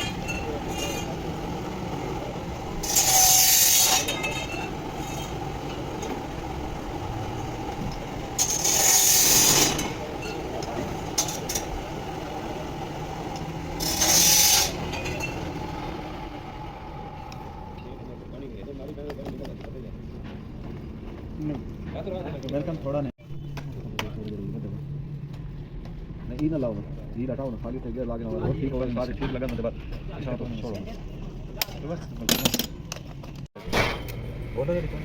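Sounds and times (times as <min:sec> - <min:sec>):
harsh hissing from workshop tools: 0:00.0 - 0:16.0
low mechanical hum: 0:00.0 - 0:18.7.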